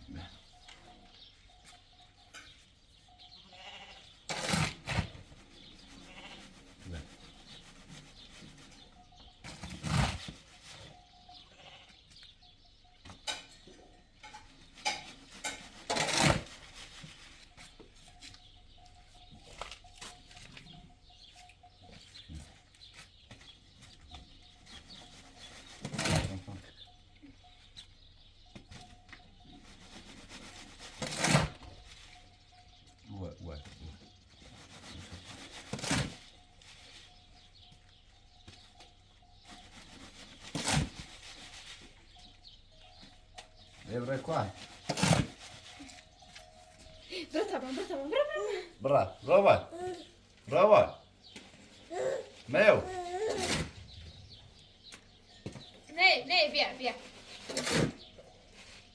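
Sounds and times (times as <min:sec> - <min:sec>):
goats bleating: 0:03.5 - 0:04.1.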